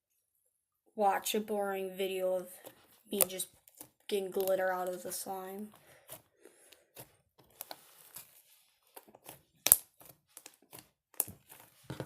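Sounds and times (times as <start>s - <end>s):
slime clicking and popping: 3.2s - 4.6s, 9.2s - 11.4s
slime snapping: 3.2s - 4.6s, 9.6s - 11.3s.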